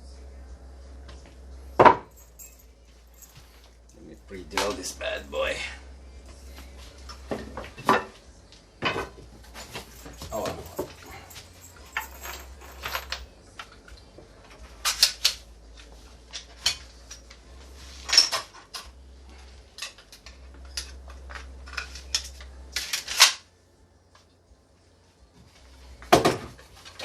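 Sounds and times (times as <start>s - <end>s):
metallic tool clinks: 1.8s - 5.4s, 9.5s - 13.3s.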